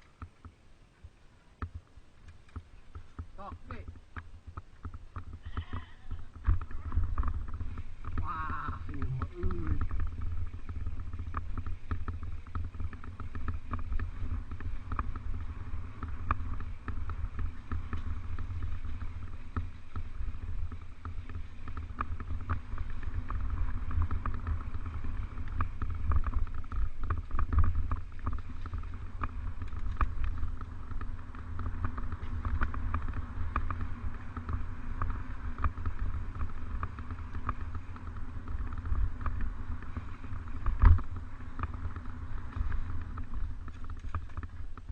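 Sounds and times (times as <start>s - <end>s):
bike clicks and rattles: 0.0s - 44.9s
wind and ground rumble: 0.0s - 44.9s.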